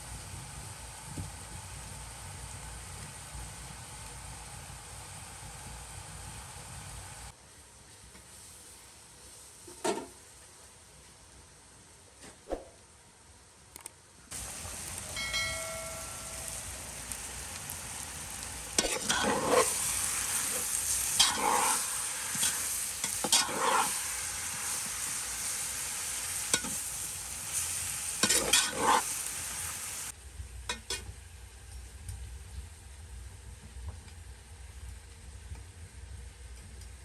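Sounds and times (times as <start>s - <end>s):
food sizzling in a frying pan: 0.0s - 7.4s, 14.3s - 31.2s
scraping in a pan: 18.7s - 25.2s, 28.2s - 29.6s.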